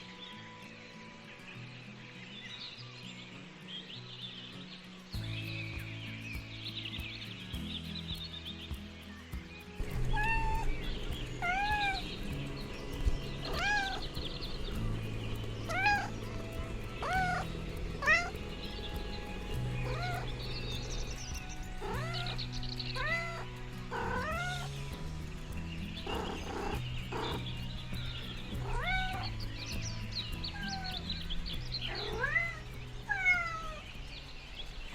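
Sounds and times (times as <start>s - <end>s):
background music low notes: 0.0s - 34.9s
kitten meowing: 10.0s - 12.5s, 13.4s - 24.7s, 26.1s - 27.5s, 28.6s - 29.6s, 30.5s - 31.2s, 31.8s - 33.8s.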